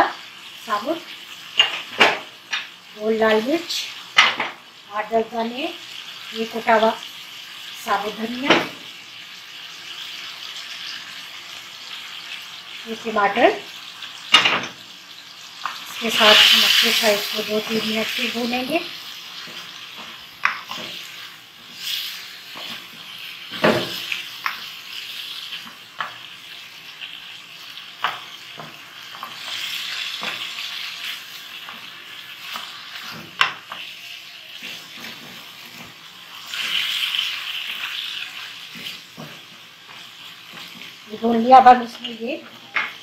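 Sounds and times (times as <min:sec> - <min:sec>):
chicken sizzling in a wok: 0:00.0 - 0:43.0
wooden spatula scraping a pan: 0:28.1 - 0:43.0.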